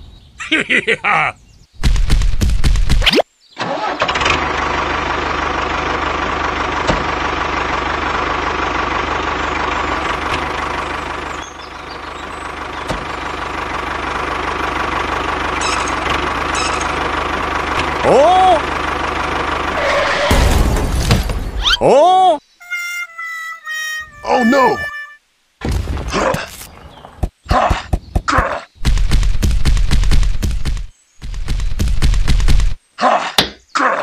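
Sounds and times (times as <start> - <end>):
tractor engine starting: 3.6 - 21.6
tractor engine running: 3.6 - 21.7, 28.8 - 32.8.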